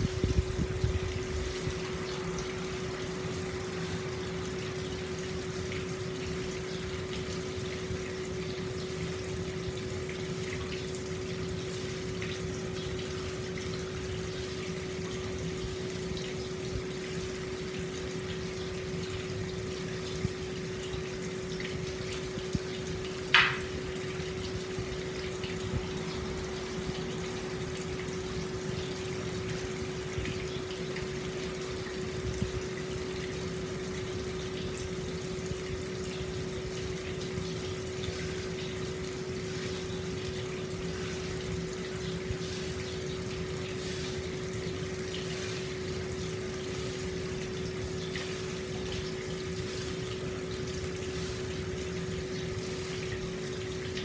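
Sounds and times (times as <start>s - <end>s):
water pouring into a bath: 0.0s - 54.0s.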